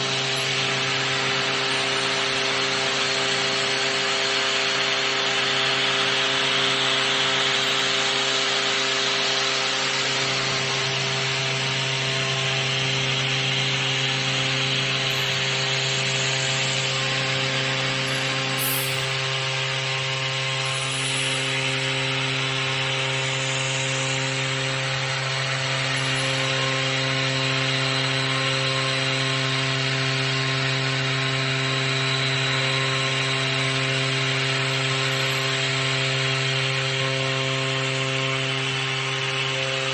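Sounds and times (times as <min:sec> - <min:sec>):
machine spindle hum: 0:00.0 - 0:39.9
cutter milling hiss: 0:11.8 - 0:28.4.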